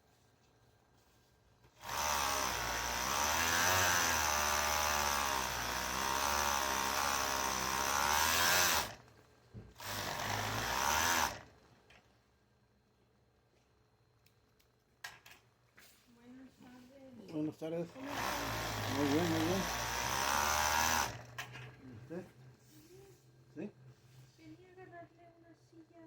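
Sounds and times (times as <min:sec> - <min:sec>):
small electric motor running: 0:01.8 - 0:09.0, 0:09.8 - 0:11.6, 0:17.9 - 0:21.4.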